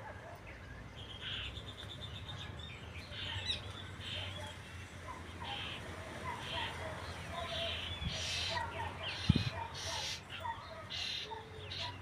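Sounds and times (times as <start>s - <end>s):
small birds chirping and singing: 0.0s - 12.0s.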